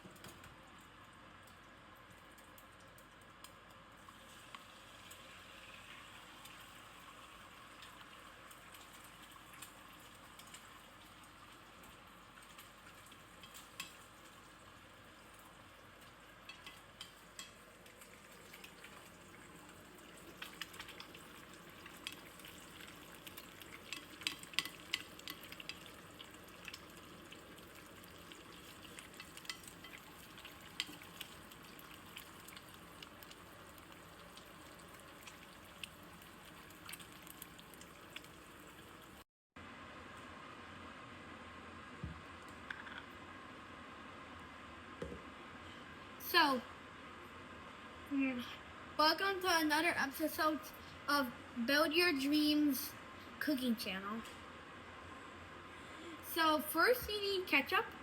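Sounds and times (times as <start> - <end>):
oil crackles and pops: 0.0 - 39.2
food sizzling in hot oil: 4.0 - 39.2.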